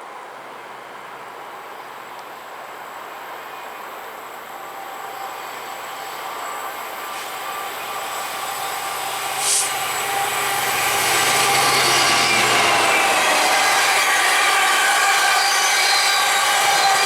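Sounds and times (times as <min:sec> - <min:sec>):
train approaching: 0:01.0 - 0:17.0
short hiss: 0:09.3 - 0:10.6.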